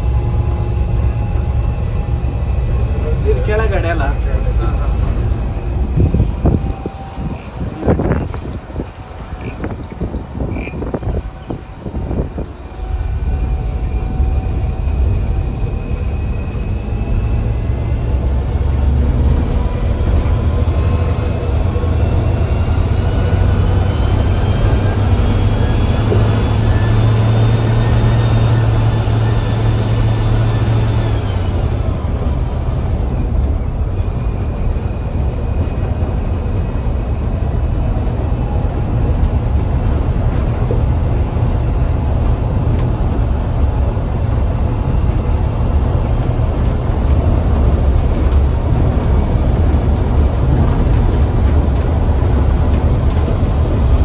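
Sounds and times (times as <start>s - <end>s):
diesel engine rumble: 0.0s - 54.0s
turbocharger whistle: 4.2s - 18.6s, 19.8s - 32.0s.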